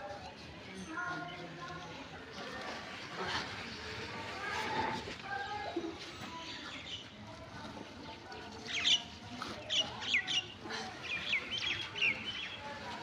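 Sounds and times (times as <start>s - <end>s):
small birds chirping: 8.6s - 12.8s.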